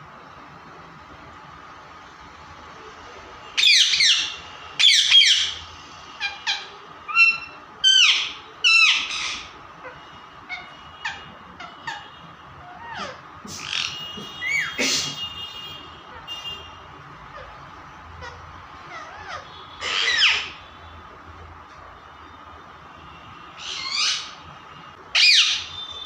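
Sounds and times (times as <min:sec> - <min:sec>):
parrot squawking: 0:03.6 - 0:14.9, 0:17.2 - 0:20.6, 0:23.6 - 0:24.4, 0:25.1 - 0:26.0.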